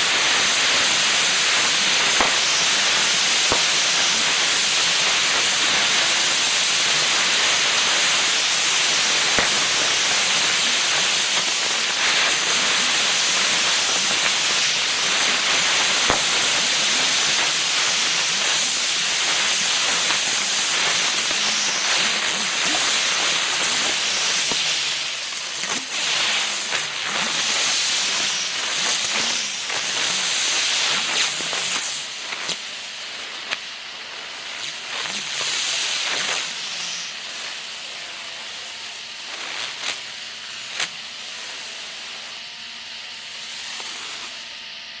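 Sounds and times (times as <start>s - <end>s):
fireworks spark-spraying hiss: 0.0s - 44.5s
sharp pops: 1.5s - 5.6s, 9.2s - 10.5s, 16.0s - 16.8s.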